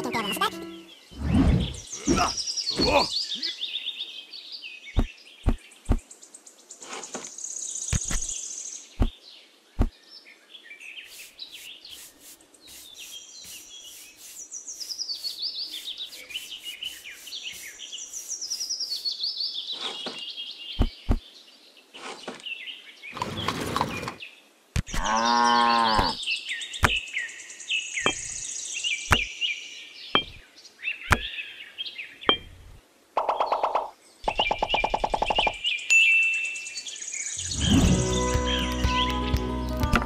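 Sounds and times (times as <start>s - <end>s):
songbirds chirping: 0.0s - 40.0s
paintbrush sweeping plastic basin: 11.1s - 19.2s
sharp knocks: 30.2s - 30.4s.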